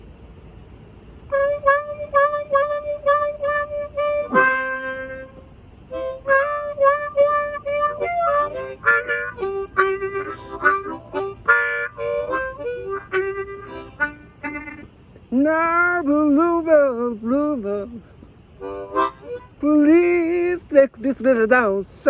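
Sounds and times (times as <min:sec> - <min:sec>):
blues harmonica playing: 0:01.3 - 0:17.9, 0:18.6 - 0:20.6.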